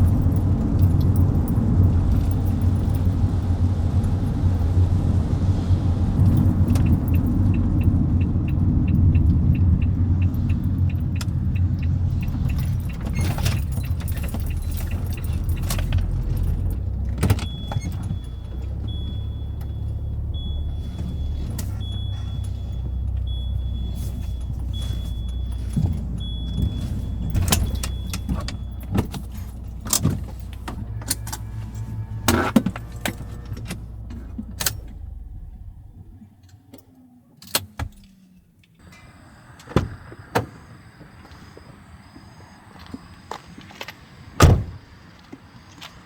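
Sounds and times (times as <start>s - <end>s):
car engine rumbling: 0.0s - 46.0s.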